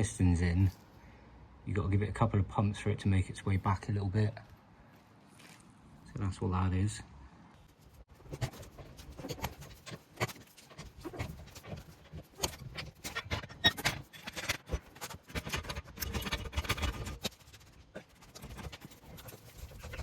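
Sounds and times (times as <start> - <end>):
tools clicking and clattering: 7.8 - 20.0.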